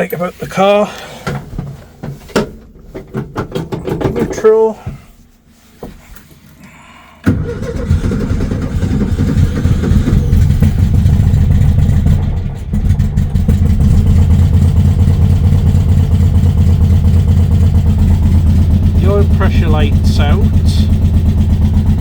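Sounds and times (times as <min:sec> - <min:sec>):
car engine starting and running: 0:07.2 - 0:22.0.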